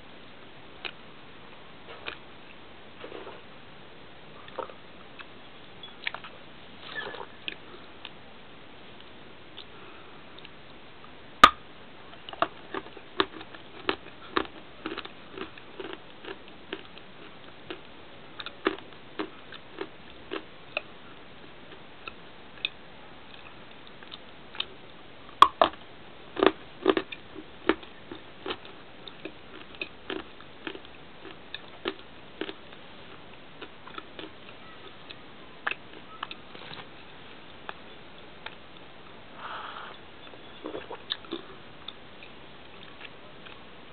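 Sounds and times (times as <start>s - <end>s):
crisp chewing crunches: 12.2s - 20.9s, 25.4s - 37.8s, 40.5s - 43.7s.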